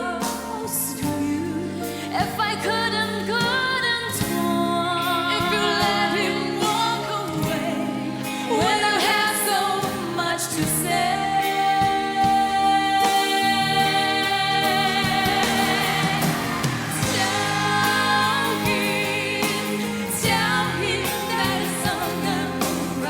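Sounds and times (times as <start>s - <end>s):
band accompaniment: 0.0s - 23.0s
vocal duet singing: 0.0s - 23.0s.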